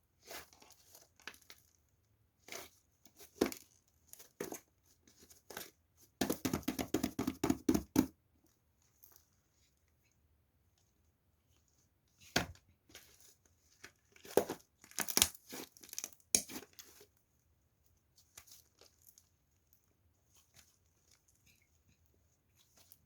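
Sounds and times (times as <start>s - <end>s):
faint plastic rustles: 0.0s - 6.2s, 8.3s - 23.0s
plastic wrapper crinkling and tearing: 14.0s - 17.0s, 18.3s - 19.3s.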